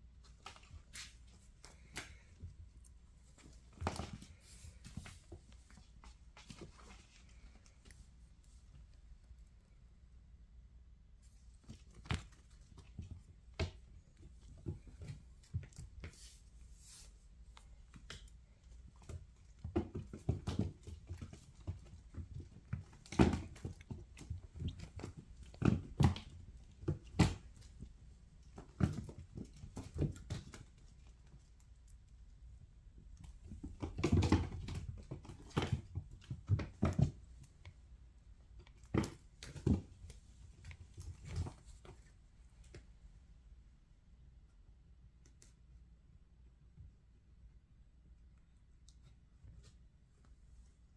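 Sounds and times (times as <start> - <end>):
kittens scampering and pouncing: 0.2 - 9.3, 11.4 - 32.4.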